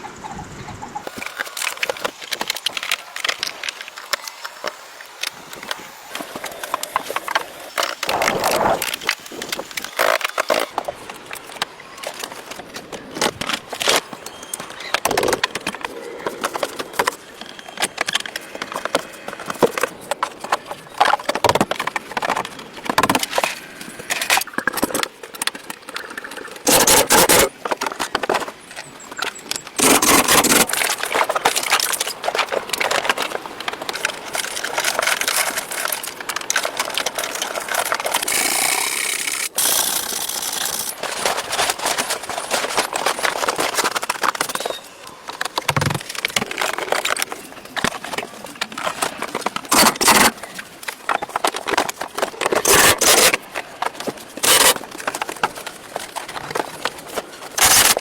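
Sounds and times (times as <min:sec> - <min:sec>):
bursts of dense noise: 0:08.0 - 0:09.2
knocks clicks and scrapes: 0:29.2 - 0:58.0.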